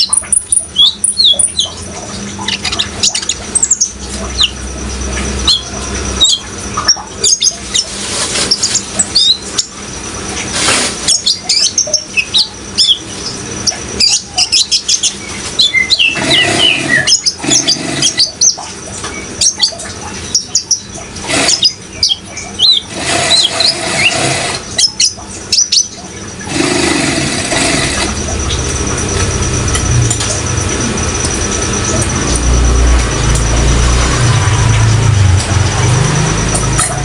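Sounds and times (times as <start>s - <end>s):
bird chirping and twittering: 0.0s - 9.8s, 11.0s - 30.9s
flowing water: 16.0s - 37.0s.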